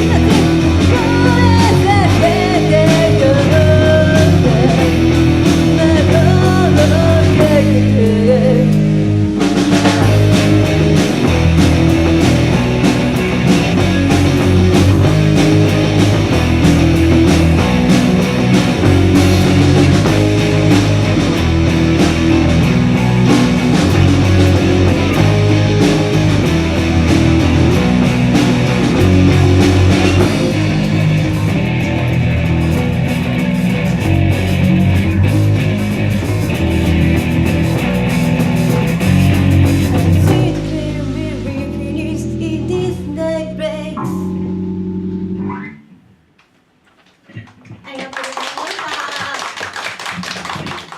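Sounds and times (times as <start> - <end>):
person singing: 0.0 - 9.0, 40.0 - 44.3
rock band music: 0.0 - 46.2.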